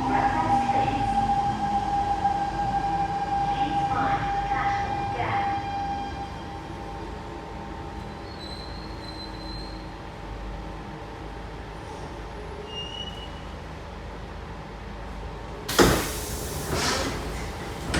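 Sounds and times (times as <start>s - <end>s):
train low rumble: 13.7s - 17.9s
train doors opening rush: 15.7s - 17.9s.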